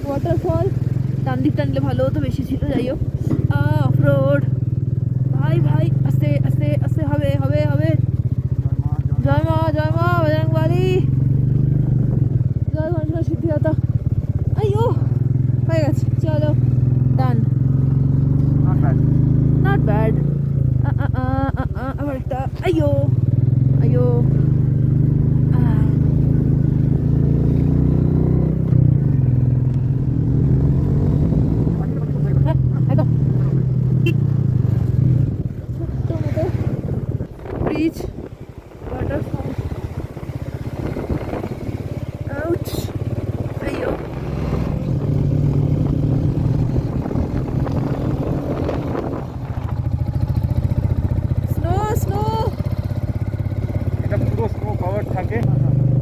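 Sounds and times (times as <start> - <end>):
motorcycle engine at low revs: 0.0 - 56.0
wind on microphone: 35.2 - 42.3, 42.9 - 50.6.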